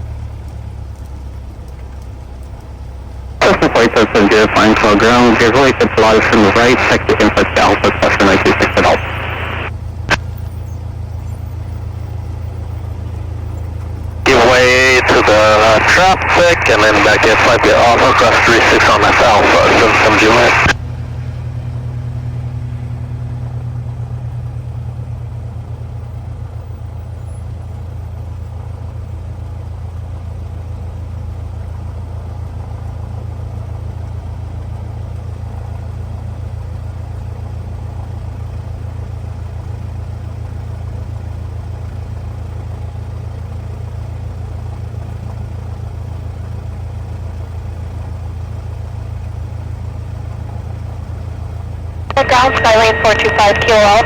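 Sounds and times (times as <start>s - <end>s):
airplane engine drone: 3.4s - 10.5s, 12.2s - 25.6s, 50.4s - 54.0s.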